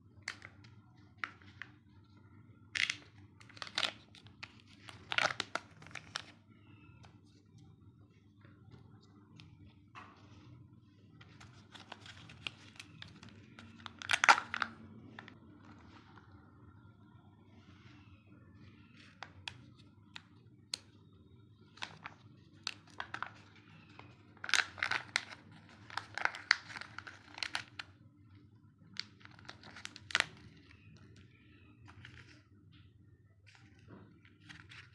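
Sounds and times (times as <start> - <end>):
plastic wrapper crinkling and tearing: 2.6 - 6.7, 11.3 - 16.0, 21.7 - 28.0, 28.8 - 31.1.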